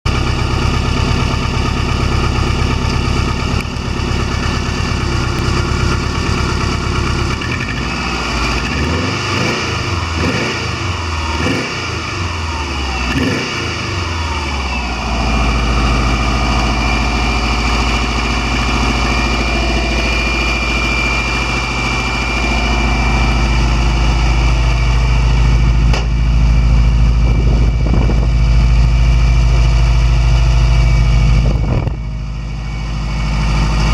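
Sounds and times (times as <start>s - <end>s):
car engine revving: 7.3s - 26.2s.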